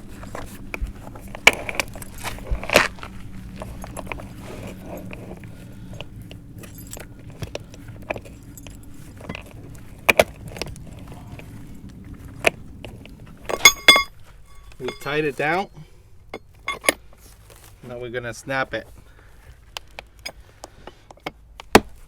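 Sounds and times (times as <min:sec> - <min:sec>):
metal chain clinking and rattling: 0:00.0 - 0:17.0
sharp metal knocks: 0:13.5 - 0:15.3.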